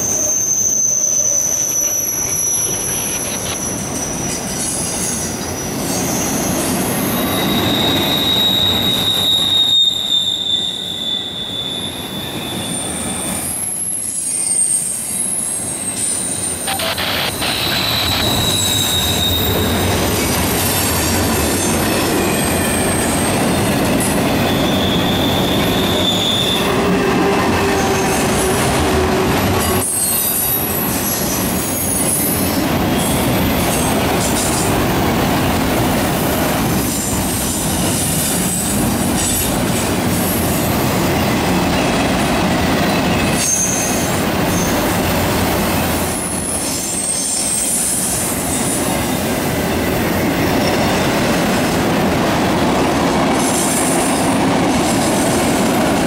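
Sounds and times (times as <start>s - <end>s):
high-pitched wheel squeals: 0.0s - 33.9s, 42.9s - 45.2s
steel wheels rumbling on rail: 0.0s - 56.0s.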